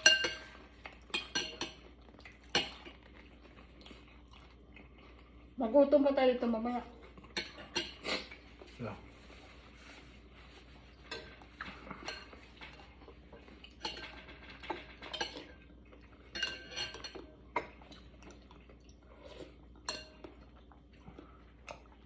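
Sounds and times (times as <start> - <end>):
spoon clinking against soup bowl: 0.0 - 1.9, 16.3 - 17.8.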